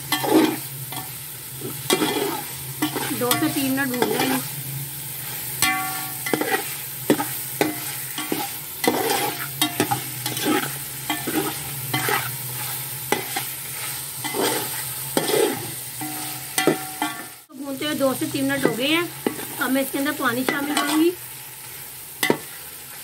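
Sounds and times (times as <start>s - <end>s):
chicken sizzling in oil: 0.0s - 23.0s
spatula scraping metal pot: 0.1s - 4.5s, 5.2s - 17.3s, 18.6s - 19.7s.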